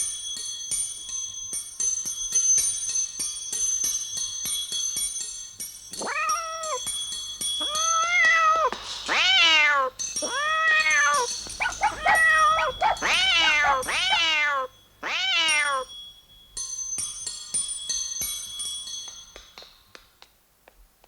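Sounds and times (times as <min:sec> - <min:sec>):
tinkling music with bell notes: 0:00.0 - 0:09.1, 0:14.8 - 0:20.2
cat meowing: 0:06.0 - 0:06.8, 0:07.6 - 0:15.9.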